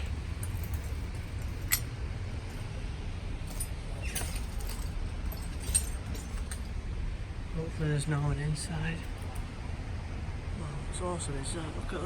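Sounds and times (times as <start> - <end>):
sharp clinks or scuffs: 0.0 - 2.8, 3.4 - 6.8, 8.9 - 9.5
steady low rumble: 0.0 - 9.9.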